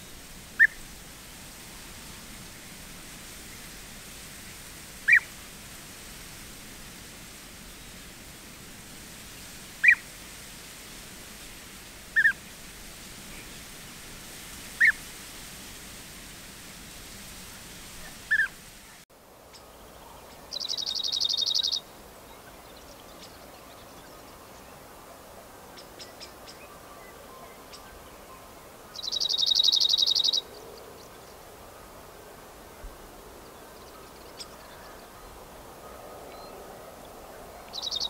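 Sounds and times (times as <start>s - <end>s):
faint ticking bird calls: 20.5s - 24.4s, 28.9s - 31.3s.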